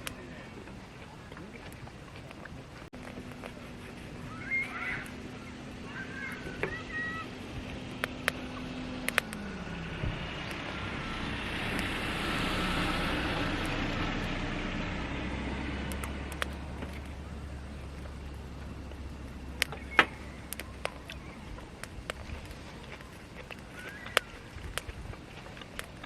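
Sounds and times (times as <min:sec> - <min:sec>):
car passing by: 0:04.7 - 0:17.8
sharp clicks: 0:07.8 - 0:09.6, 0:15.8 - 0:17.2, 0:17.9 - 0:26.0.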